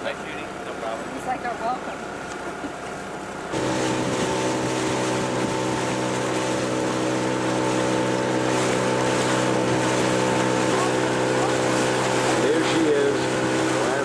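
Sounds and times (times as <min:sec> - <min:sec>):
outboard motor running: 0:00.0 - 0:14.0
water rushing past hull: 0:00.0 - 0:14.0
wind on microphone: 0:03.6 - 0:12.2.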